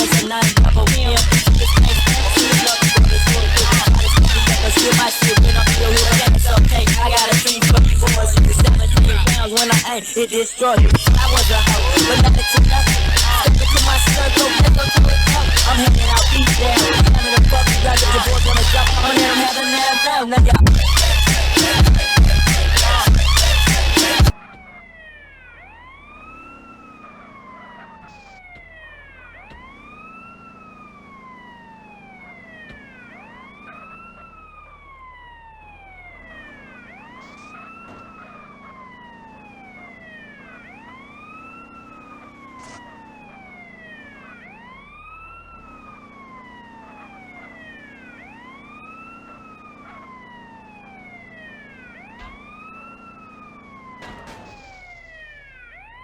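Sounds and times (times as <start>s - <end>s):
siren wailing: 0.0s - 56.0s.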